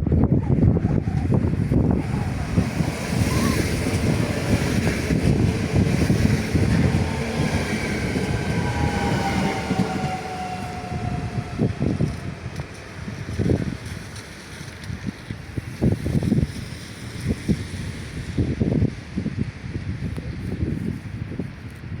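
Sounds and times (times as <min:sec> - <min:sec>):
train running on track: 0:00.0 - 0:20.7
whine sliding down in pitch: 0:00.6 - 0:12.8.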